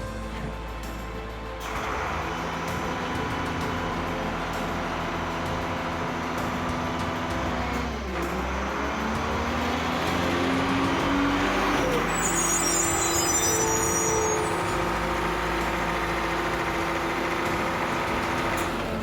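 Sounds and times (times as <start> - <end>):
heavy truck engine running: 0.0 - 19.0
high-pitched brake squeal: 11.0 - 17.4.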